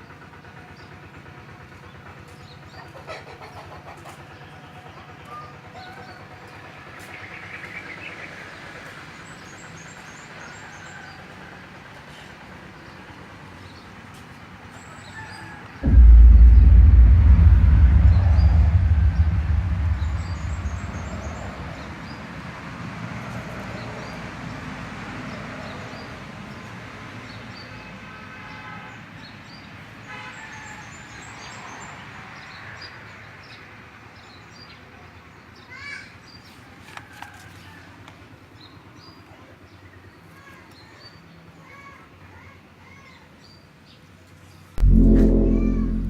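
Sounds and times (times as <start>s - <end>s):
low vehicle rumble: 15.8s - 22.5s, 44.8s - 46.0s.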